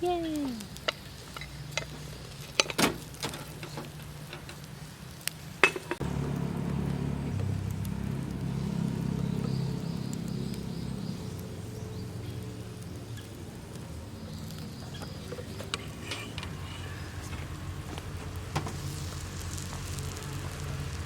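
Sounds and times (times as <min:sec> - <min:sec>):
faint sizzle: 0:00.0 - 0:21.0
steady low hum: 0:06.0 - 0:19.1.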